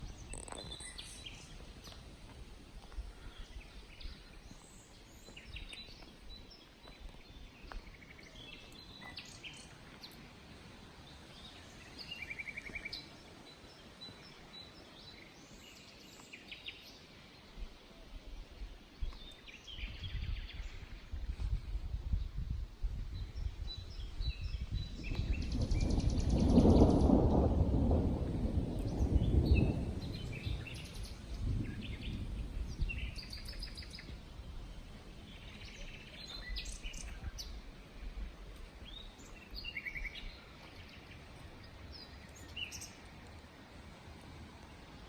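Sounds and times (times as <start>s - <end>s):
birds chirping and calling: 0.0s - 2.0s
thunder rumbling: 24.9s - 35.1s.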